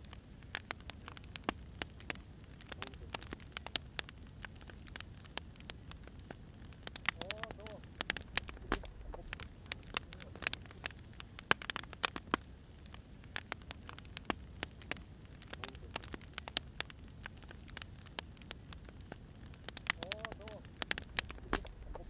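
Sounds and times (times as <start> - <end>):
firewood crackling and popping: 0.0 - 22.0
low rumble of flames: 0.0 - 22.0.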